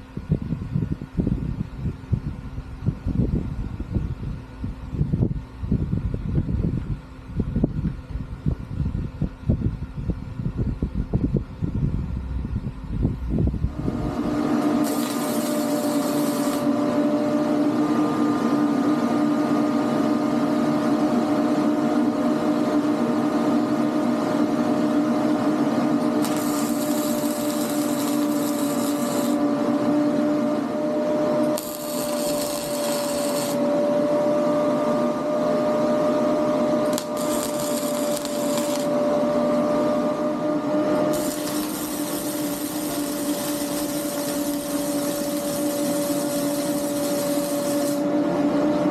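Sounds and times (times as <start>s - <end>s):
electric power tool running: 13.7s - 18.2s, 25.9s - 34.9s, 35.7s - 40.3s, 40.9s - 48.2s
harsh high hiss of cutting: 14.6s - 16.8s, 26.1s - 29.4s, 31.4s - 33.7s, 36.8s - 39.0s, 41.1s - 48.0s.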